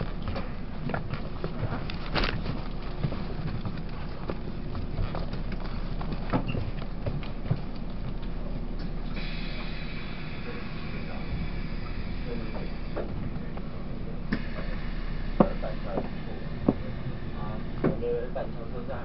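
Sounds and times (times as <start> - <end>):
running gear knocks and clicks: 0.0 - 9.0
train interior low rumble: 0.0 - 19.0.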